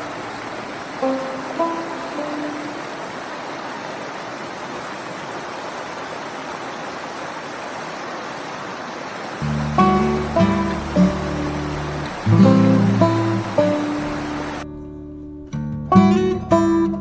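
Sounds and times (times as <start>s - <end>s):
flowing water rushing: 0.0s - 14.6s
plucked note: 1.0s - 2.9s, 9.4s - 17.0s.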